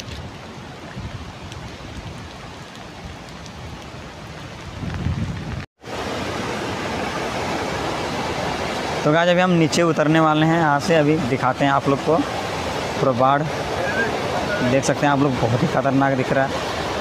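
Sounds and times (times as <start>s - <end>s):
river rushing in flood: 0.0s - 17.0s
steady rain falling: 0.0s - 17.0s.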